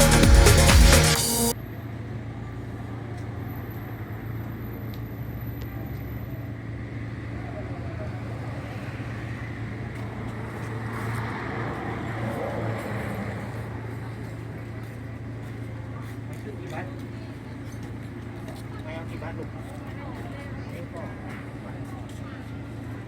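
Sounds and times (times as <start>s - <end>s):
road vehicle rumble: 0.0s - 23.0s.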